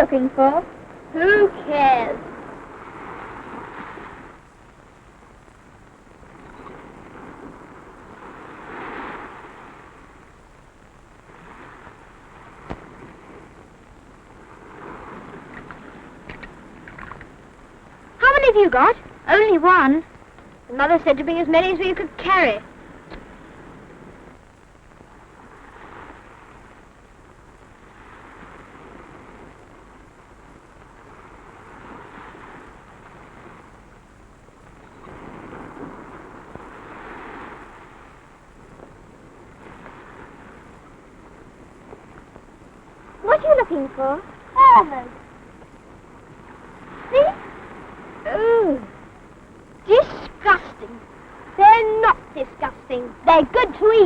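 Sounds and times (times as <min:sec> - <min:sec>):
surf breaking on rocky shore: 0:00.0 - 0:24.4, 0:34.7 - 0:54.0
faint click: 0:15.5 - 0:17.3.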